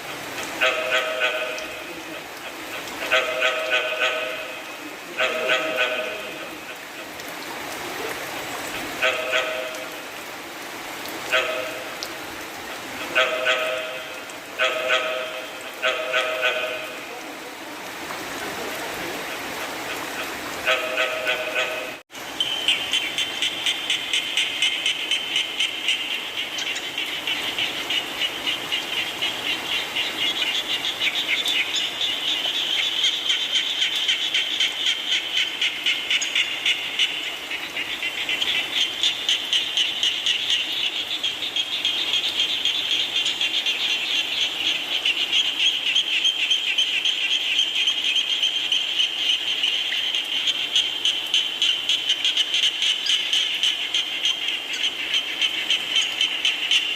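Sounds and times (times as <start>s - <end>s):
frogs trilling: 0.0s - 10.3s, 19.2s - 56.9s
rain hiss: 0.0s - 56.9s.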